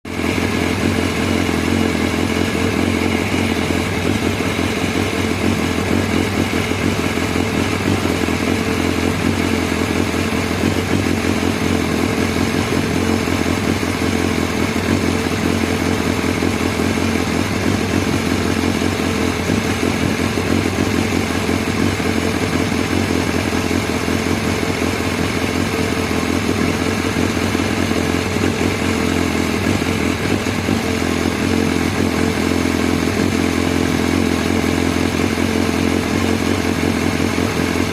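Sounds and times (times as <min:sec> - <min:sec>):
motorcycle engine idling: 0:00.1 - 0:37.9.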